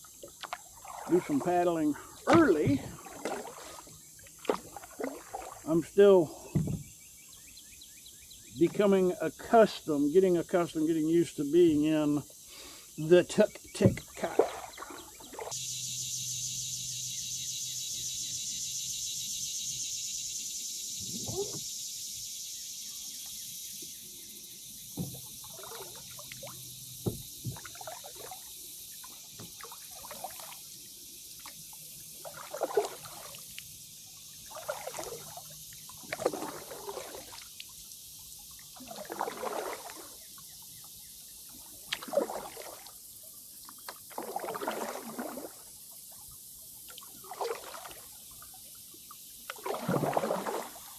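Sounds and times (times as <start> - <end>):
water splashing and dripping: 0.0 - 6.4, 13.7 - 15.6, 24.9 - 40.5, 41.5 - 45.7, 46.8 - 50.9
kayak paddle strokes: 0.0 - 7.0, 13.2 - 15.6, 21.0 - 21.7, 24.8 - 45.6, 47.0 - 48.0, 49.1 - 50.9
high-pitched hiss: 15.5 - 32.1.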